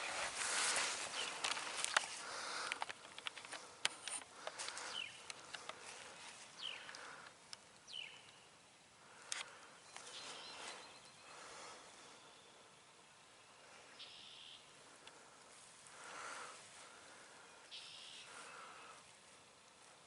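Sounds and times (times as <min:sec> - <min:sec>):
dry leaves crackling: 0:00.0 - 0:07.2
high bird chirps: 0:13.9 - 0:14.7.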